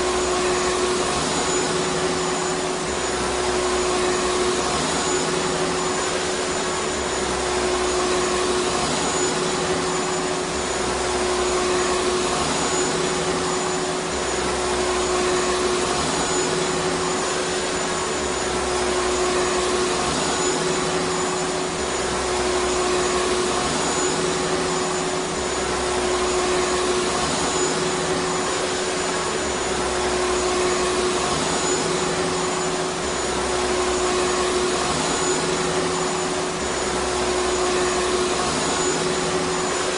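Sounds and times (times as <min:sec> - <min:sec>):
vacuum cleaner motor running: 0:00.0 - 0:39.9.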